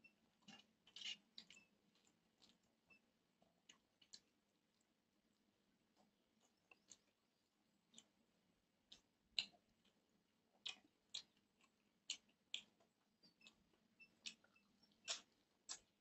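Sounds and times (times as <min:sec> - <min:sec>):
wet chewing clicks: 0:00.0 - 0:16.0
lip smacks: 0:10.6 - 0:13.6, 0:14.2 - 0:15.9.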